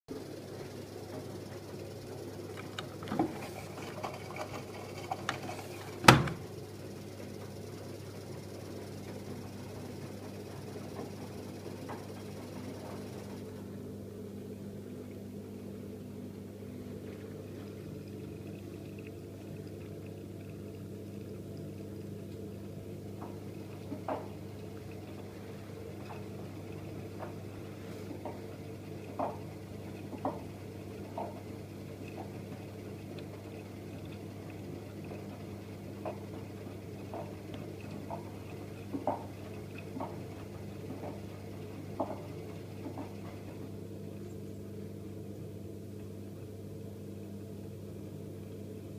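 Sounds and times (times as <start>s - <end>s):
washing machine humming: 0.0s - 48.9s
water sloshing in drum: 2.9s - 7.6s, 16.8s - 43.8s.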